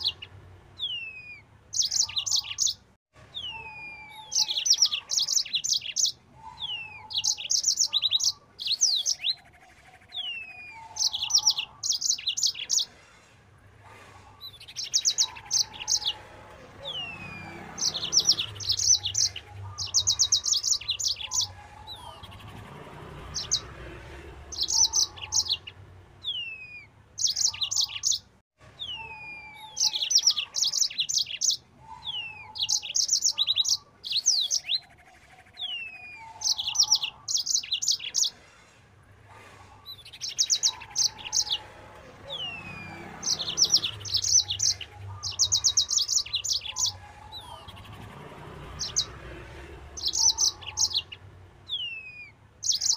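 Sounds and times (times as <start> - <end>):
canary singing fast trills: 0.0 - 13.2, 14.2 - 38.8, 39.4 - 52.9.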